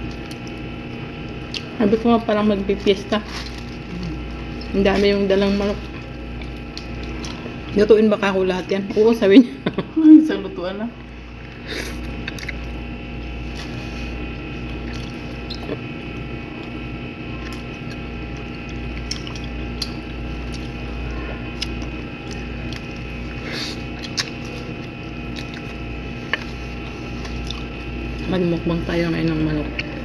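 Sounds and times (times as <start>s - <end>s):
electrical hum: 0.0s - 30.0s
close-up chewing: 5.8s - 7.8s, 11.5s - 28.3s.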